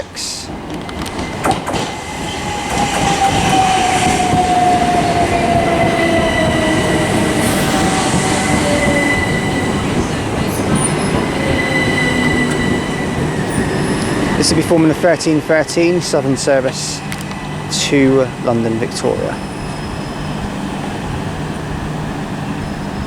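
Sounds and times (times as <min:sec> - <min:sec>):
wheels rumbling on rail: 0:00.0 - 0:23.0
electric train motor whine: 0:00.7 - 0:14.6
high brake squeal: 0:02.2 - 0:14.6, 0:19.0 - 0:20.7.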